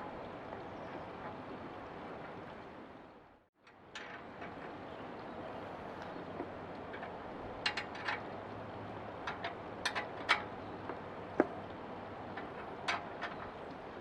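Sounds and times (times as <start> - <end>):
tools clicking and knocking on metal: 9.2 - 10.5, 12.3 - 13.6.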